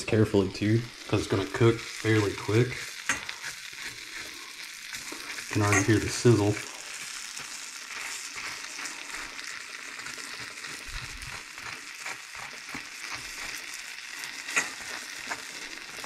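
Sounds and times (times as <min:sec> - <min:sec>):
bread sizzling in a pan: 0:00.0 - 0:16.0
knife scraping bread: 0:02.8 - 0:06.0, 0:07.9 - 0:13.7.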